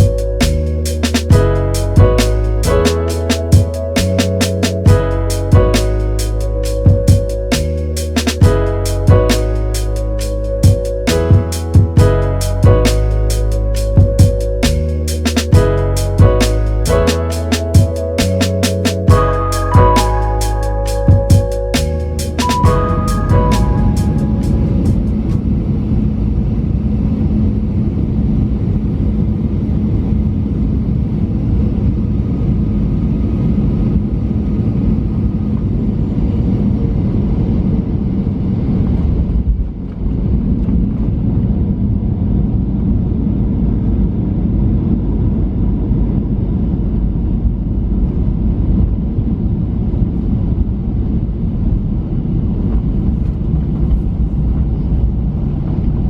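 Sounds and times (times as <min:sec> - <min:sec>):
airliner engine noise in cabin: 0:24.2 - 0:56.0.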